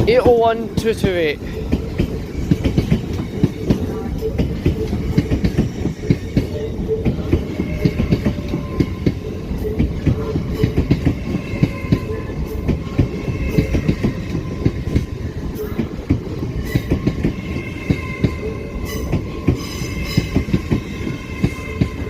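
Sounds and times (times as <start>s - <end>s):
train rumble: 0.0s - 22.0s
train wheels clattering over rail joints: 0.8s - 22.0s.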